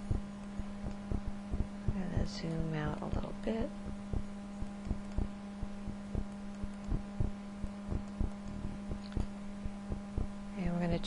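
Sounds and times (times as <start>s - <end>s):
soft low clicks: 0.0s - 2.0s, 3.9s - 5.4s, 6.0s - 9.4s
low electrical hum: 0.0s - 11.0s.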